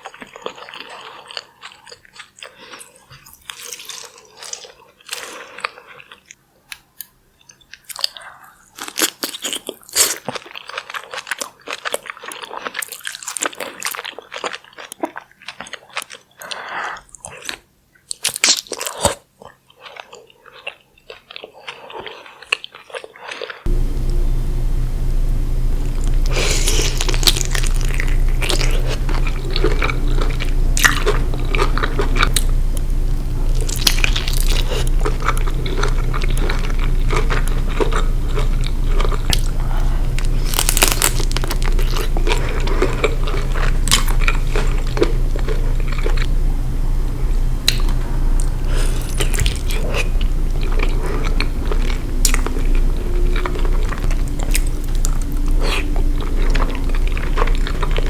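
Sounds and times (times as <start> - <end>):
food crunching: 0.0 - 58.0
biting and chewing: 17.2 - 46.8, 47.6 - 58.0
low hum: 23.7 - 58.0.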